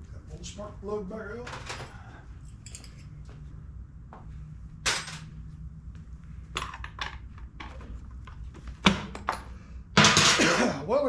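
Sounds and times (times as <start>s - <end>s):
steady low hum: 0.0s - 11.0s
metal tools clinking: 2.5s - 3.1s, 4.9s - 5.3s.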